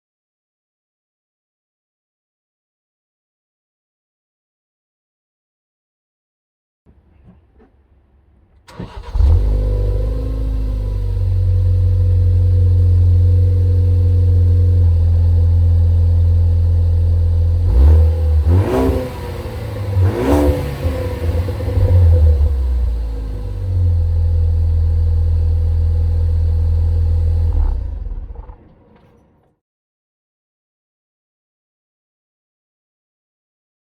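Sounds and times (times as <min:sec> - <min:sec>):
car engine starting and revving: 0:08.7 - 0:29.1.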